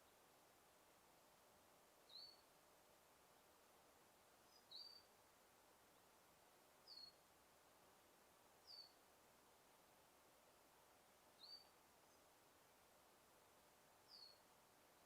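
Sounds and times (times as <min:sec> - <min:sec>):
forest ambience hiss: 0:00.0 - 0:15.0
bird chirping: 0:02.1 - 0:02.4, 0:04.5 - 0:05.1, 0:06.8 - 0:07.2, 0:08.6 - 0:09.0, 0:11.4 - 0:12.3, 0:14.1 - 0:14.4.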